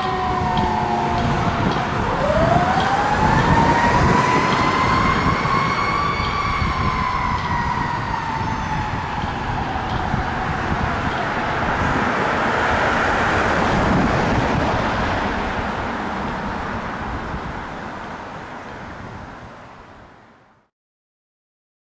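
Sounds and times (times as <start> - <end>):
mechanical siren winding down: 0.0 - 12.4
fire truck rumble and road noise: 0.0 - 20.7.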